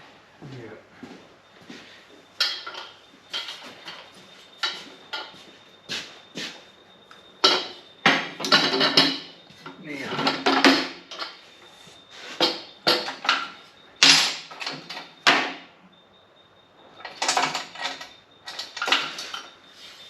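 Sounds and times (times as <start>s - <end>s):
metal clinks and knocks: 2.4s - 5.4s, 7.4s - 11.5s, 17.0s - 19.6s.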